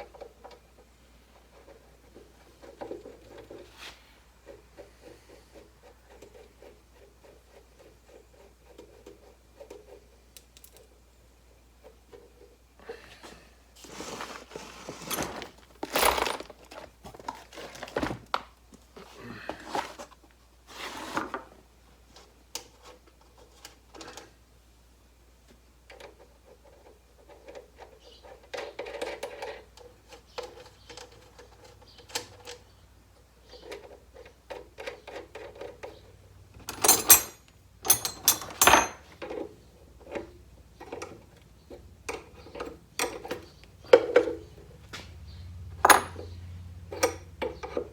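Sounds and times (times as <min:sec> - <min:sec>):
metal parts clattering: 0:15.0 - 0:16.9, 0:36.6 - 0:39.1, 0:45.8 - 0:46.3
hand tools clicking and clinking: 0:15.1 - 0:16.9, 0:36.6 - 0:39.4, 0:45.8 - 0:46.3, 0:46.9 - 0:47.9.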